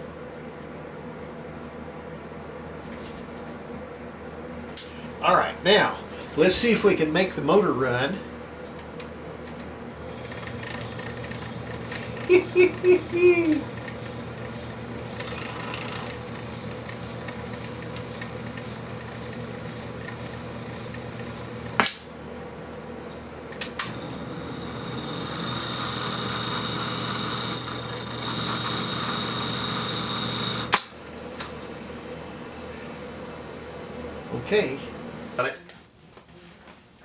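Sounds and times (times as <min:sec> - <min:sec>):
electrical hum: 0:00.0 - 0:35.8
motor whirring with high whine: 0:10.1 - 0:21.8, 0:23.8 - 0:35.4.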